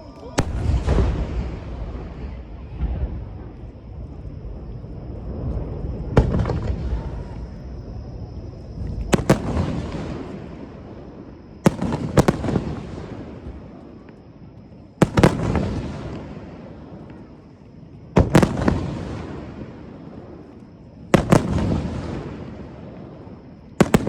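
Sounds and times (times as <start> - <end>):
rolling rumble: 0.0 - 13.8.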